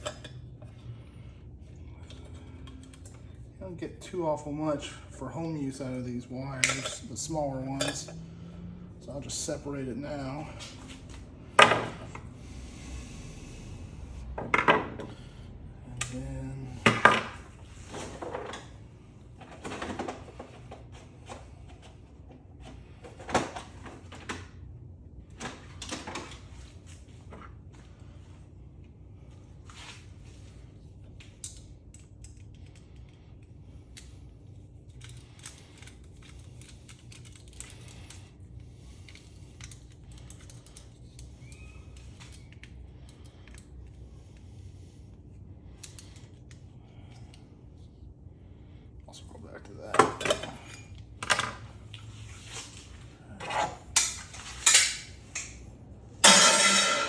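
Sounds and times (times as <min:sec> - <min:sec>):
faint steady hum: 0:00.0 - 0:57.0
metal parts and tools clinking: 0:53.4 - 0:57.0.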